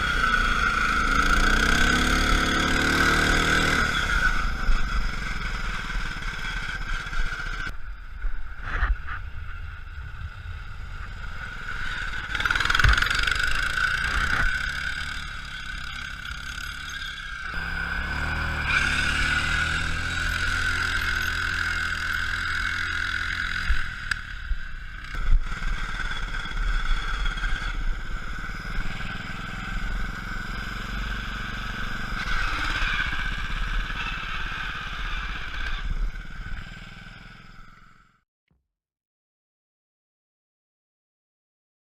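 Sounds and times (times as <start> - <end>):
vehicle engine revving: 0.0 - 7.7, 10.7 - 24.3.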